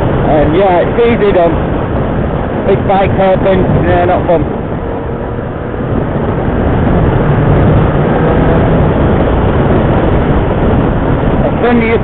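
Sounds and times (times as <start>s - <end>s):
wind rushing past: 0.0s - 12.0s
motorcycle engine: 4.4s - 11.6s.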